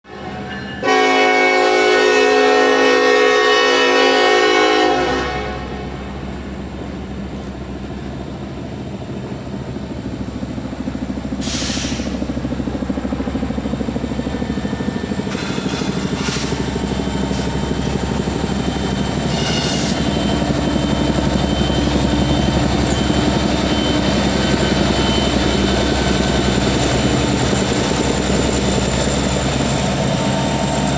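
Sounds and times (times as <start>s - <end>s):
locomotive air horn: 0.1s - 6.1s, 19.2s - 20.1s.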